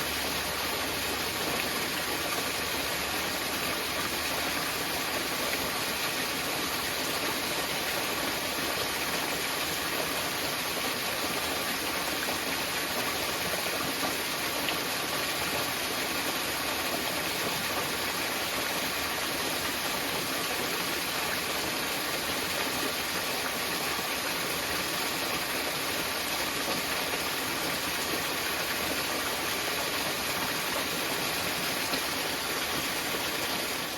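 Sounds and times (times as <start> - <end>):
small waterfall splashing: 0.0 - 33.9.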